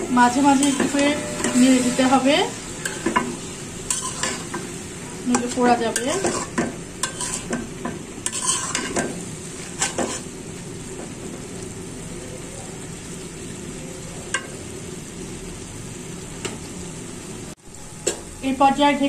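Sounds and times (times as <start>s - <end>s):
metal spatula scraping a pan: 0.0s - 10.4s
food sizzling in a pan: 0.0s - 19.0s.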